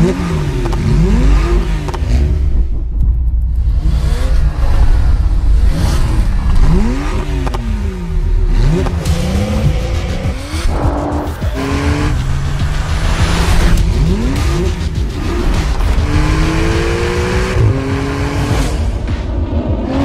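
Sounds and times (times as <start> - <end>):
sports car engine revving: 0.0 - 2.9, 3.6 - 20.0.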